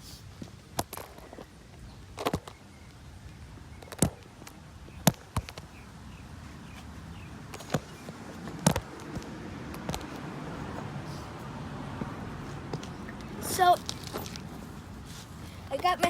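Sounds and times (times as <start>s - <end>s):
sharp knocks and clicks: 7.5s - 10.2s.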